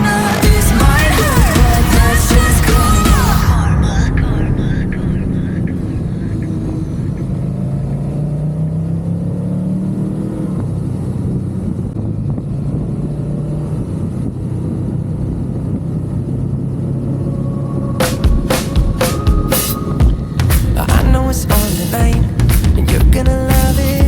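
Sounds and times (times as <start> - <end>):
music with drum hits: 0.0 - 3.7, 18.0 - 24.0
wind rumble: 2.1 - 8.2, 13.9 - 23.2.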